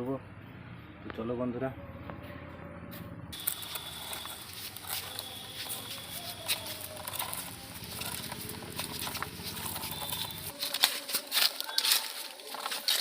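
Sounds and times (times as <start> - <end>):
plastic toy vehicles clicking: 3.4 - 13.0.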